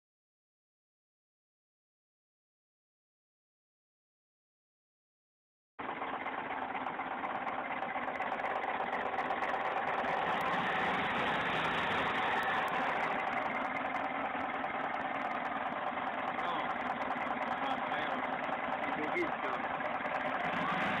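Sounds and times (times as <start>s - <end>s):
car engine running: 5.8s - 21.0s.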